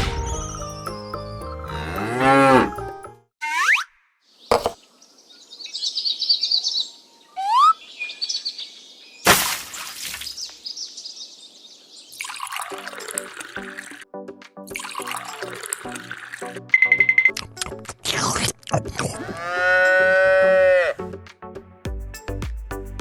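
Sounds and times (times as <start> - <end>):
cow mooing: 19.2 - 21.0.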